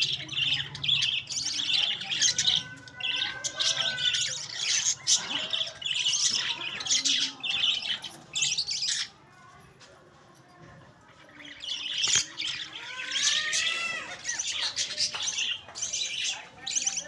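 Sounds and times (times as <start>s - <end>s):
cage bird chattering chirps: 0.0s - 9.3s, 11.1s - 17.0s.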